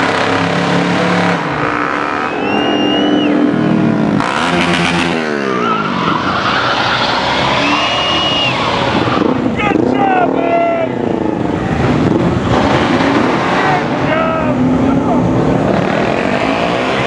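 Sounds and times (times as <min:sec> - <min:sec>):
cars and motorcycles passing: 0:00.0 - 0:17.0
high whistle: 0:02.2 - 0:03.8, 0:07.5 - 0:08.8.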